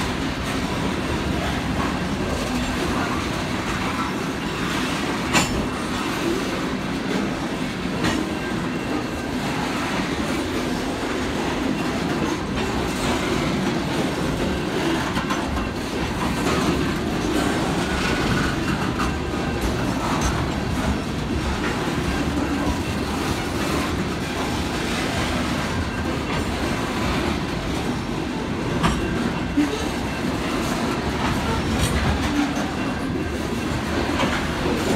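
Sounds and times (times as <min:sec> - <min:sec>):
freight train wheels rumbling: 0:00.0 - 0:34.9.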